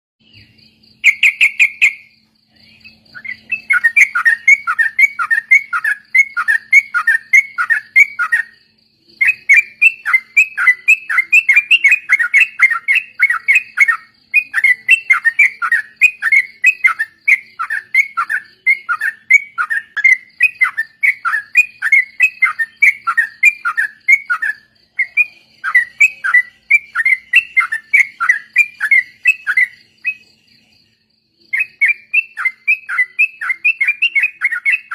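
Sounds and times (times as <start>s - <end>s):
faint steady high tone: 0.2s - 34.9s.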